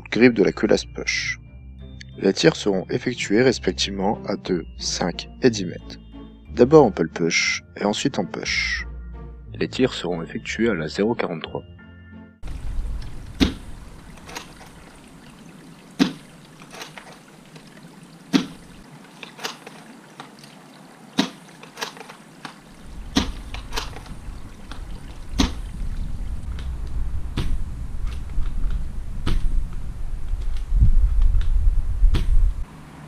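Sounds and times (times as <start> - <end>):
low rumble: 12.4 - 14.2, 22.9 - 32.7
rifle bolt clicks: 21.6 - 22.6, 23.2 - 24.1
airsoft rifle shot crack: 23.1 - 24.0.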